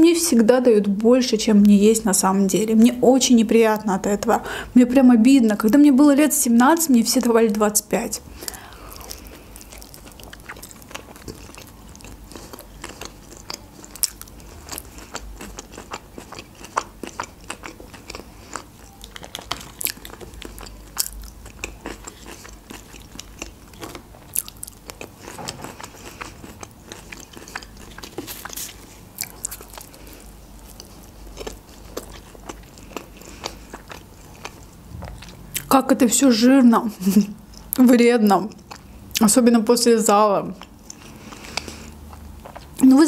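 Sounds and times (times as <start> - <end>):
chewing with mouth clicks: 8.3 - 35.7, 38.4 - 39.3, 40.5 - 42.8.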